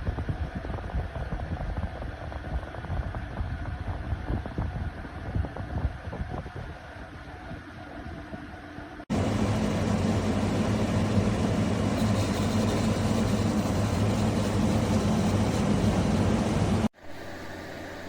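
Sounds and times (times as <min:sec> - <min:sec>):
low hum: 0:07.2 - 0:18.0.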